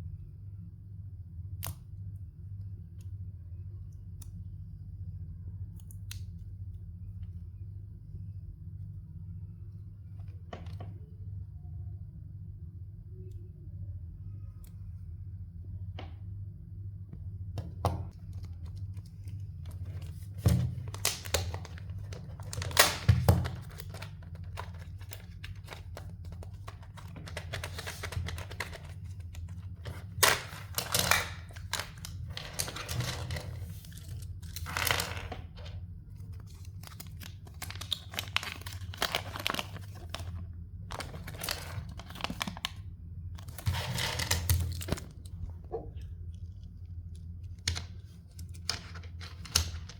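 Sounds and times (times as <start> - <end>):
steady low hum: 0.0 - 49.9
wrappers tearing and crinkling: 19.7 - 35.2, 36.4 - 42.8, 43.4 - 45.3.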